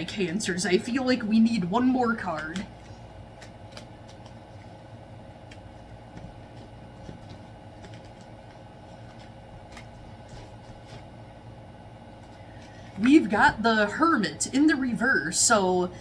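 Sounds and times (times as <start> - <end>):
steady low hum: 0.0 - 16.0
cards shuffling and flicking: 2.2 - 4.8, 5.4 - 11.2, 12.1 - 13.3.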